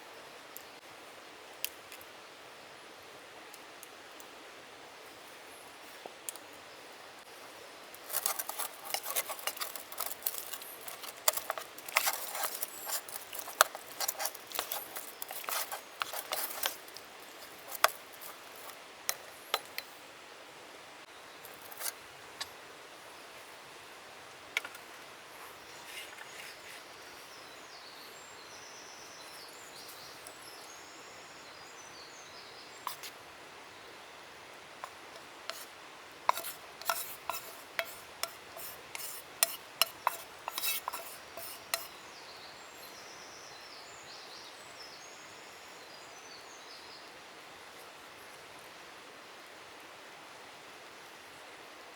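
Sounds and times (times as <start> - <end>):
crisp cutting and crinkling clicks: 8.0 - 18.8
faint bird chirps: 25.4 - 33.0.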